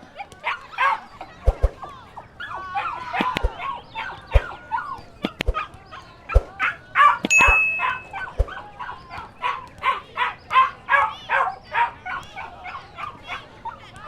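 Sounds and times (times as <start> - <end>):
puppies yipping and barking: 6.6 - 13.8.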